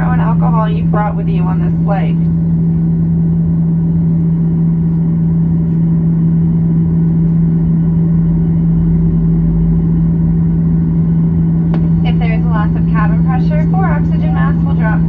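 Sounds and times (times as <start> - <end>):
airplane cabin engine drone: 0.0 - 15.0.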